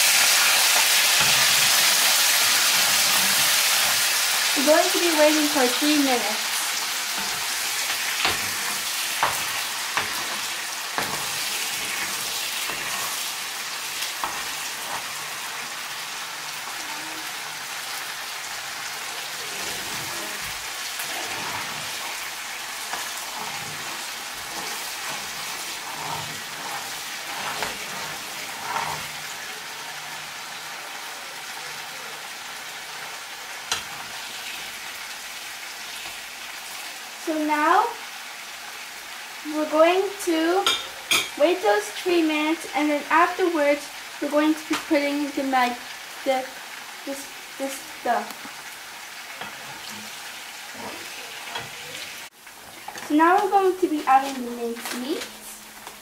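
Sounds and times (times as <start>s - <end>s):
metal spoon scraping a pan: 0.0s - 18.0s, 18.8s - 30.7s, 32.8s - 34.9s, 40.5s - 41.4s, 49.2s - 55.3s
onions sizzling in a frying pan: 0.0s - 56.0s.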